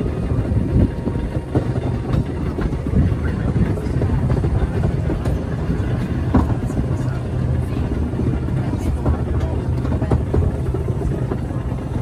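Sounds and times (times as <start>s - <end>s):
train rumbling: 0.0s - 12.0s
wheels clicking on track: 0.0s - 12.0s.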